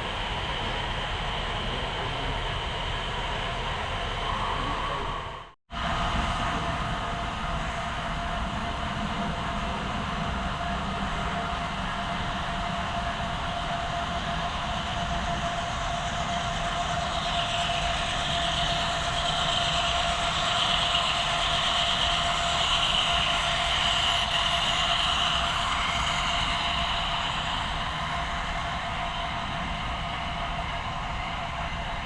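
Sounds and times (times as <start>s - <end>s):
model train rolling on track: 6.4s - 32.0s.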